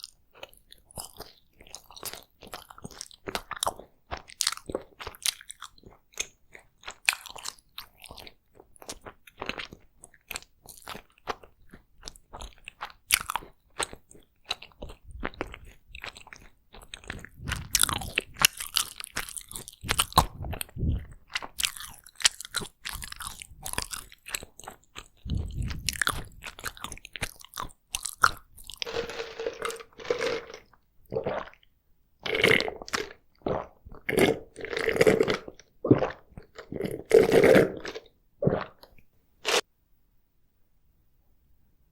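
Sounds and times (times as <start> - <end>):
food crunching: 0.0 - 39.6
wet chewing mouth smacks: 13.9 - 28.9
low throat sounds: 17.2 - 18.4, 19.8 - 21.2, 25.2 - 26.7.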